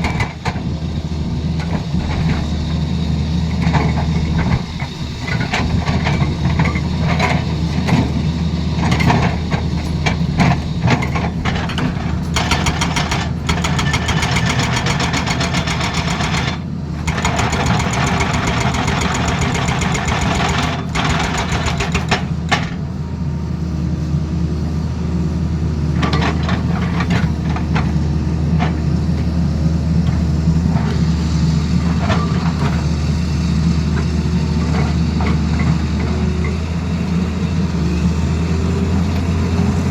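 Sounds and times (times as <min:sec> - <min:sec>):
excavator diesel engine running: 0:00.0 - 0:39.9
hydraulic breaker hammering: 0:11.4 - 0:22.8.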